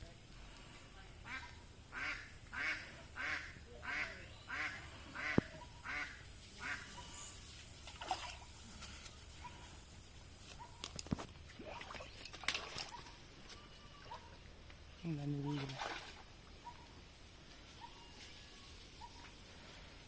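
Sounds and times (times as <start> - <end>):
duck quacking: 1.2 - 7.0.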